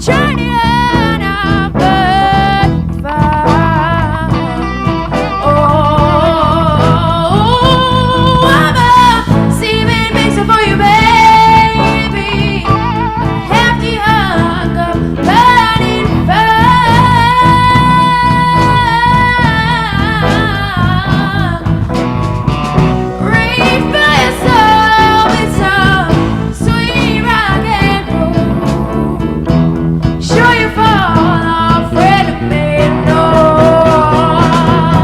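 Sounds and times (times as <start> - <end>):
live blues band playing: 0.0 - 35.0
lead guitar bent held notes: 10.7 - 35.0.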